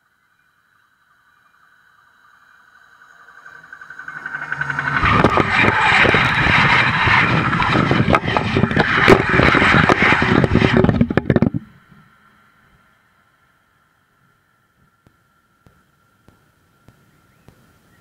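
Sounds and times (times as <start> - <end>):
train passing overhead: 2.2 - 11.0.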